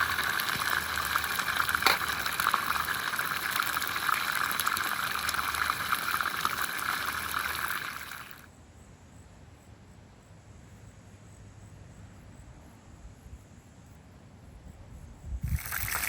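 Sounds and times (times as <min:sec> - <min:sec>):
liquid rushing sound: 0:00.0 - 0:08.4, 0:15.5 - 0:16.0.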